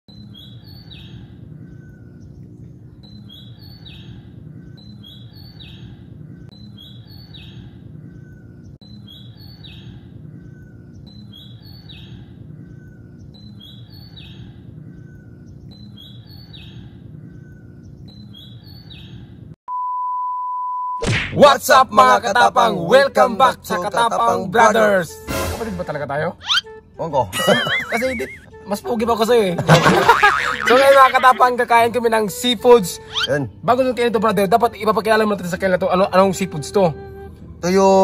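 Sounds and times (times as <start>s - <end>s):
bird call stepping down in pitch: 26.4s - 26.8s, 33.0s - 33.4s.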